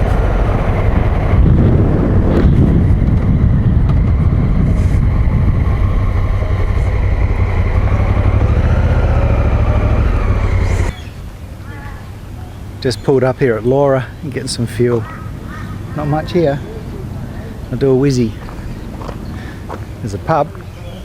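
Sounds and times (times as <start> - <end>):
wind rush on microphone: 0.0 - 11.0
motorcycle engine: 0.0 - 11.8.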